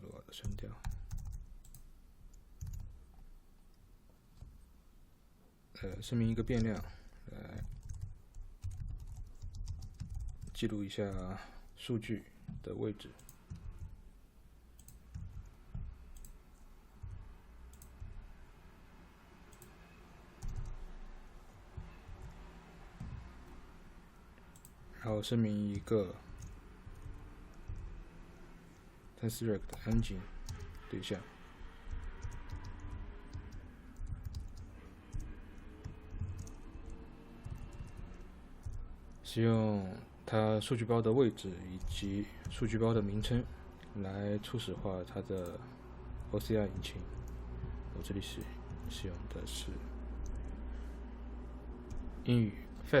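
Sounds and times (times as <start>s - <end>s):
dull low thumps: 15.2s - 16.0s.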